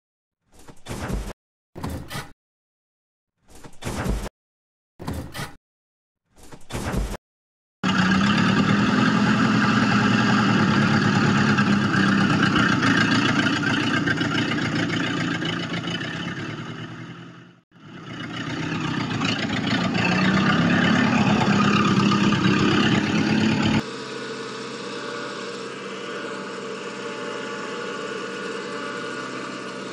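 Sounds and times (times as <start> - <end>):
small electric motor humming: 18.8 - 29.9.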